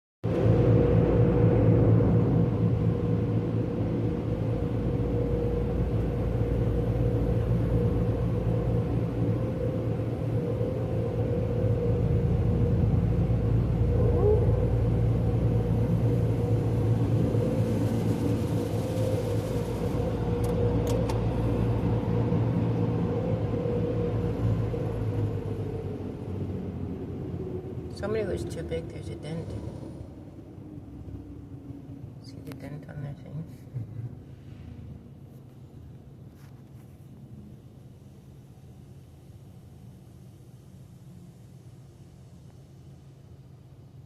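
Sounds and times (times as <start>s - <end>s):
constant hum: 0.2s - 44.0s
low mechanical rumble: 0.2s - 44.0s.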